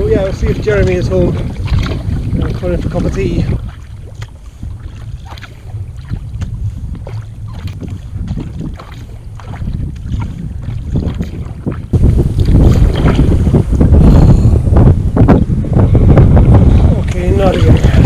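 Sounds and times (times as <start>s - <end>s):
paddle splashing in water: 0.0s - 13.6s
wind buffeting microphone: 0.0s - 18.0s.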